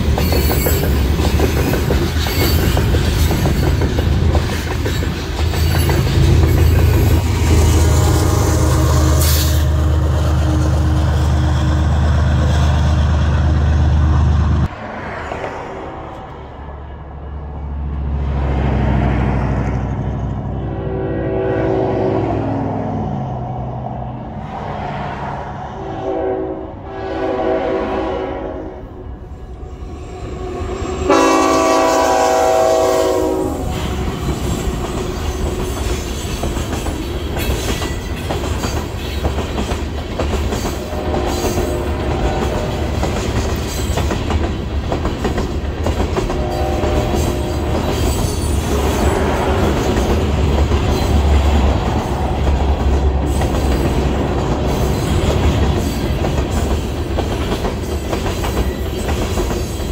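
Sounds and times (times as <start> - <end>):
train rumble: 0.0 - 59.9
locomotive horn: 6.1 - 11.9, 20.4 - 22.9, 25.7 - 29.7, 30.3 - 34.3, 40.8 - 43.1, 46.3 - 49.8.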